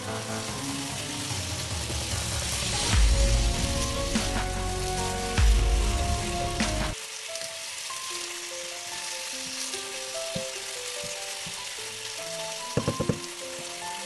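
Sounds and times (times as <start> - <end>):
chicken and onion sizzling: 0.0 - 14.0
knocks: 12.8 - 13.3.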